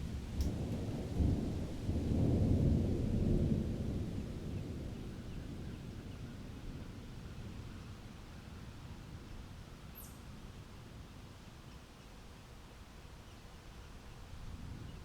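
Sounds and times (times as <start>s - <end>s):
thunder rumbling: 0.0s - 7.7s.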